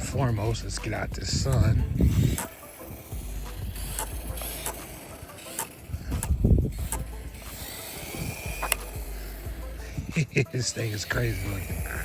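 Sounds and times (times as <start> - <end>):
wind rumble on microphone: 0.0 - 2.4, 5.9 - 7.4
small electric motor whine: 0.0 - 12.0.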